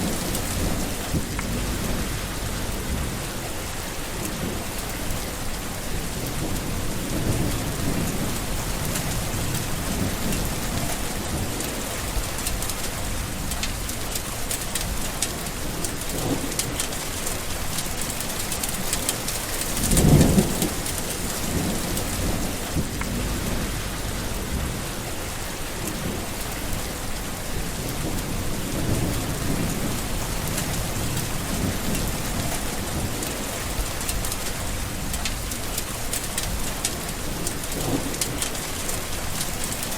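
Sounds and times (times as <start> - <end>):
thunderclap: 0.0 - 3.4, 19.5 - 25.2
thunder rumbling: 0.0 - 14.0, 18.0 - 39.9
heavy rain: 0.0 - 39.9.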